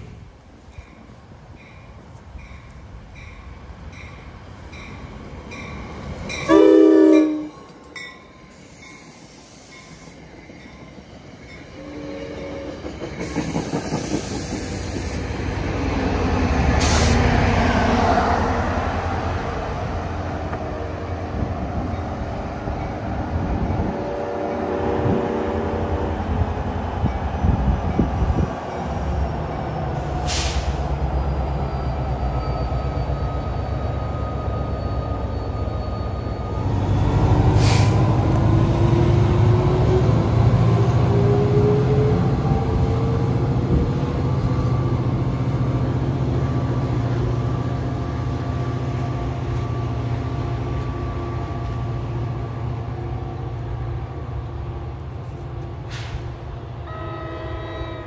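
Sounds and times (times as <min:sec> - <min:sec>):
locomotive and wheels rumbling: 0:00.0 - 0:58.0
train horn blaring: 0:06.4 - 0:07.6, 0:23.8 - 0:26.3, 0:56.8 - 0:58.0.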